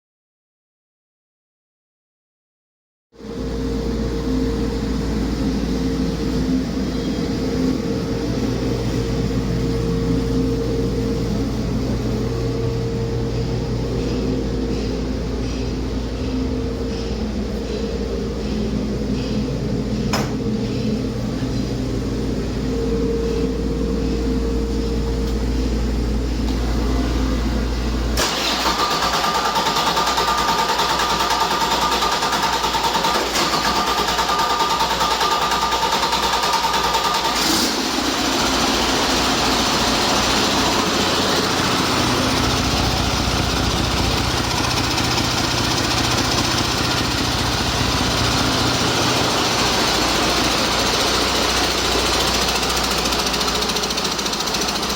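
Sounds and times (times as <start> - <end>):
high whine: 3.2 - 28.2
diesel engine running: 3.2 - 54.9.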